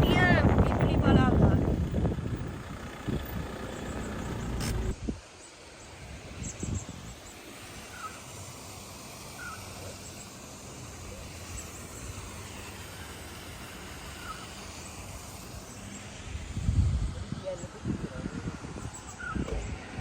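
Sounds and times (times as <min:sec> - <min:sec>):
steady low rumble: 0:00.0 - 0:05.1.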